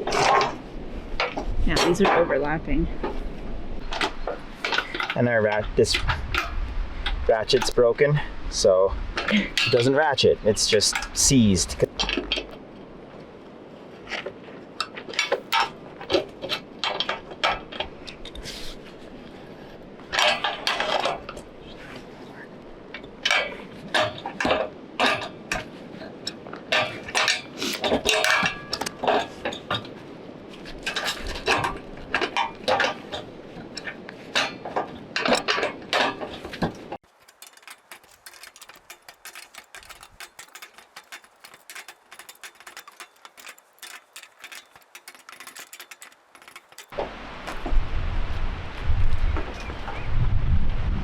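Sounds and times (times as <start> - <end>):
metal parts clanking: 0.0 - 8.0, 8.6 - 12.7, 14.1 - 19.4, 20.1 - 22.2, 22.9 - 47.6
wind rumbling on microphone: 0.0 - 41.7, 47.0 - 51.0.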